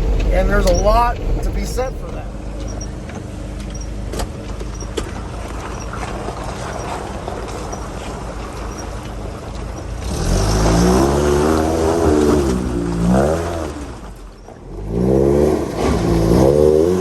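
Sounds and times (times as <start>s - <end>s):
knocks and rattles: 0.0s - 10.0s
truck engine running: 0.0s - 15.0s.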